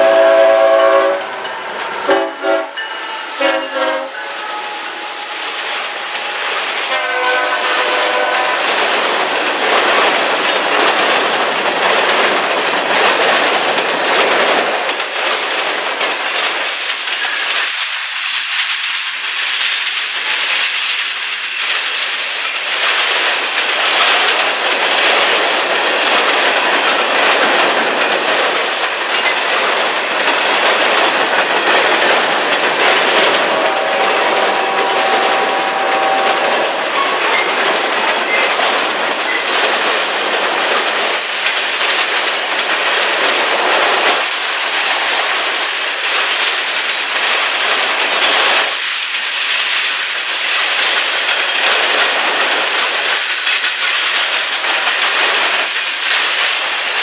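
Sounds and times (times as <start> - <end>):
locomotive horn: 0.0 - 1.4, 2.1 - 5.4, 6.9 - 8.8, 33.4 - 37.2
freight cars rolling on rails: 0.0 - 57.0.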